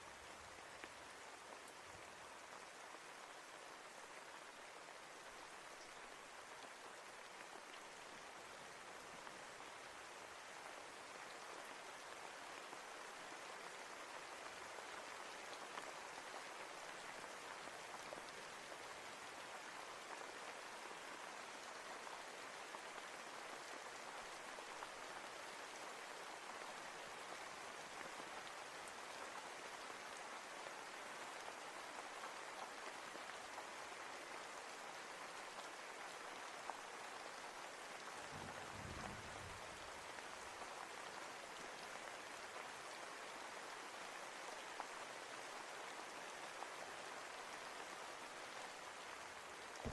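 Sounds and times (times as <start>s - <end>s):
steady rain falling: 0.0s - 49.9s.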